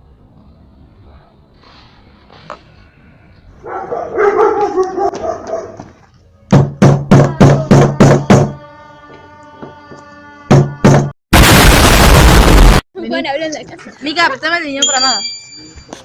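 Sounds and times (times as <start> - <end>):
dog barking: 3.6 - 5.9.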